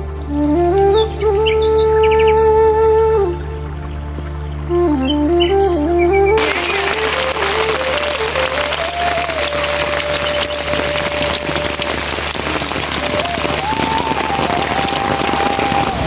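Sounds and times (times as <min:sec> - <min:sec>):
soft flute melody: 0:00.0 - 0:16.0
heavy rain falling: 0:06.4 - 0:16.0.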